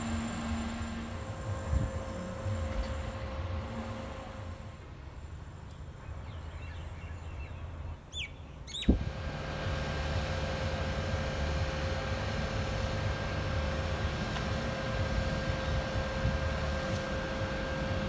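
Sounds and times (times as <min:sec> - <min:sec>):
electric train approaching: 0:00.0 - 0:07.8, 0:09.0 - 0:18.0
low outdoor rumble: 0:00.0 - 0:18.0
bird chirps: 0:06.0 - 0:09.0.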